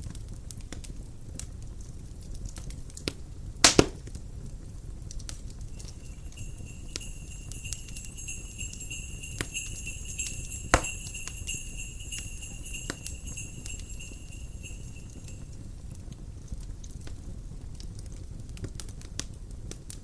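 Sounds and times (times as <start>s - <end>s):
crackling fire: 0.0s - 20.0s
sharp loud pop: 3.7s - 4.0s
bells jingling: 5.6s - 15.6s.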